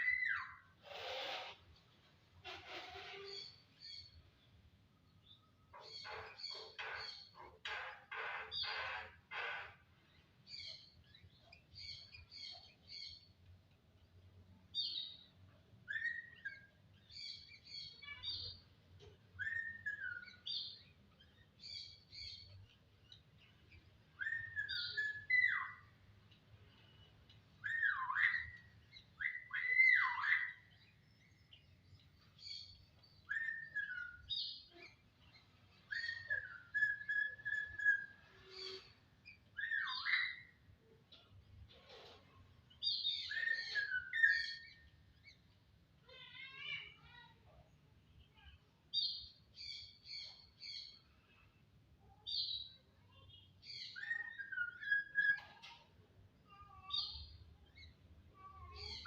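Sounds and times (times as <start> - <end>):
starling whistling and chirping: 19.4 - 20.4, 24.2 - 25.8, 33.2 - 34.5, 35.9 - 38.8, 39.6 - 40.5, 42.8 - 44.8, 53.7 - 55.5.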